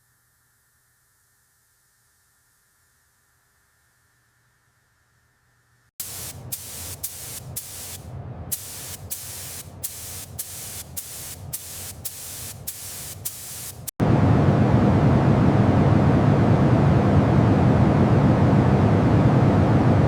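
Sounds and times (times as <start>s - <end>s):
pressurized spray hissing: 6.0s - 13.9s.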